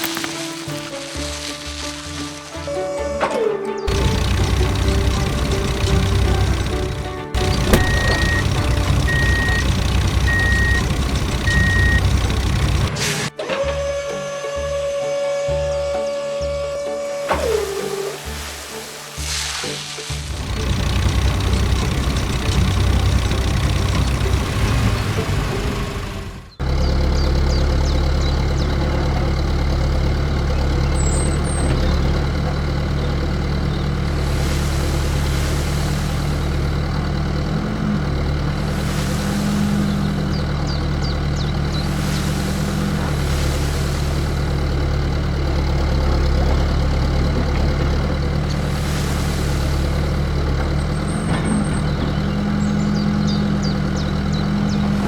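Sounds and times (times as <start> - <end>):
diesel truck engine idling: 3.9 - 13.0, 20.1 - 55.0
air brake hisses: 3.9 - 13.3, 34.2 - 36.8, 38.6 - 40.4, 41.8 - 44.5, 48.7 - 50.4.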